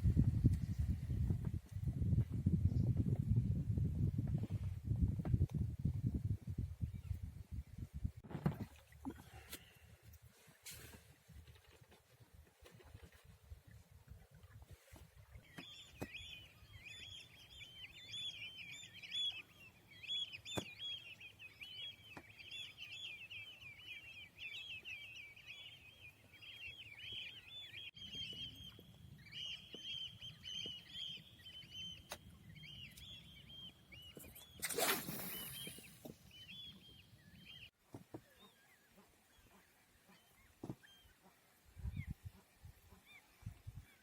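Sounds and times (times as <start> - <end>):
small birds twittering: 15.3 - 41.2.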